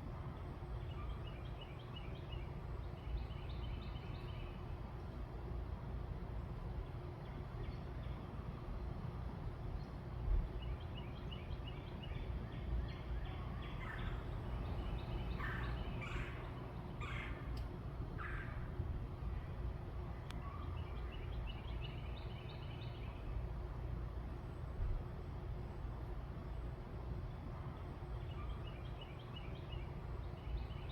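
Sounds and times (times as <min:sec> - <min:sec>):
harsh bird calls: 0:13.6 - 0:17.6
bird chattering: 0:13.8 - 0:17.4.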